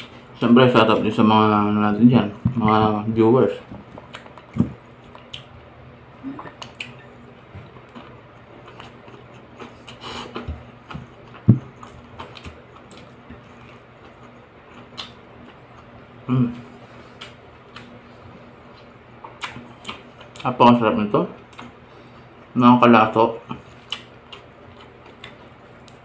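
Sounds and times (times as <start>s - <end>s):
faint steady hum: 0.0s - 26.0s
man chewing: 3.8s - 20.5s, 21.4s - 22.5s, 23.4s - 26.0s.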